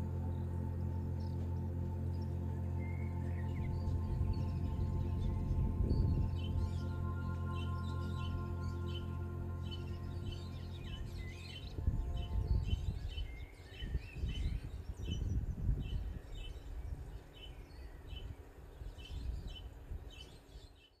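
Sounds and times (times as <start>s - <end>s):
music: 0.0s - 14.6s
low rumbling background: 0.0s - 20.5s
birds chirping: 0.0s - 21.0s.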